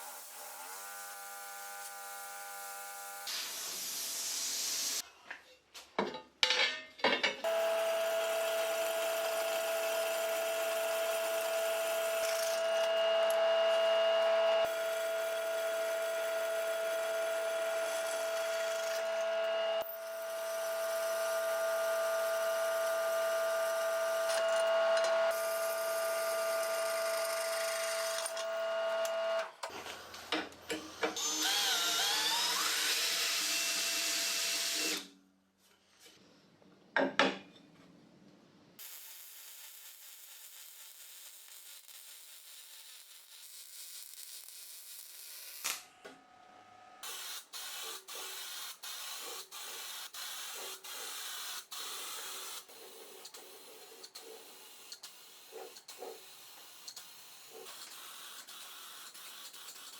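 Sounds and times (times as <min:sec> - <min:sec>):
harsh noisy power tool: 0:07.5 - 0:28.7, 0:30.7 - 0:35.1
electric tool whining: 0:07.5 - 0:29.9.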